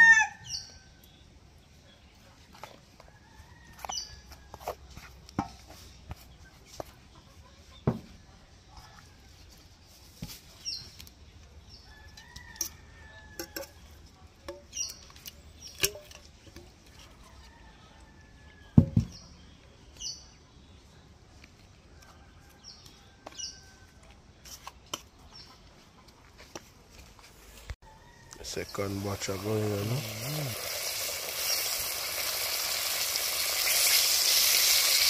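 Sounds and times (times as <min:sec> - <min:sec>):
birds chirping: 0:13.7 - 0:16.5.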